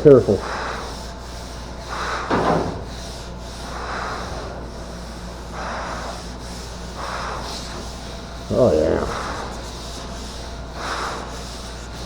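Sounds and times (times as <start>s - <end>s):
sandpaper strokes: 7.5s - 12.0s.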